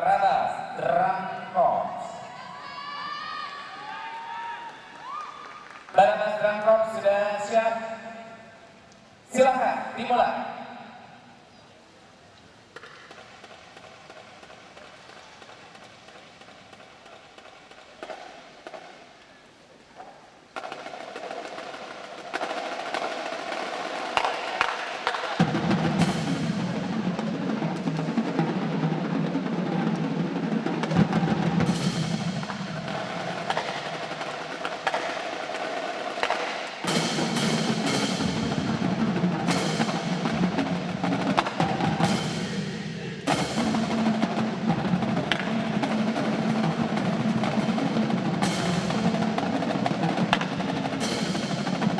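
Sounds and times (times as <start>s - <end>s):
snare drum rolls: 12.7s - 19.4s, 20.0s - 51.9s
cymbal crashes: 36.8s - 46.6s
bass drums: 36.9s - 51.9s.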